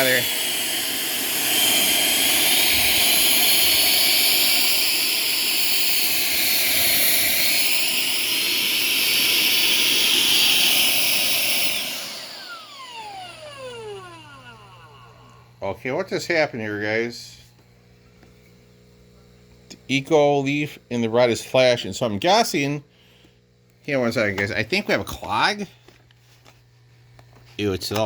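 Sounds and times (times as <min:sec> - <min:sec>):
motor winding down: 0:00.0 - 0:15.8
vacuum cleaner whine: 0:00.0 - 0:28.0.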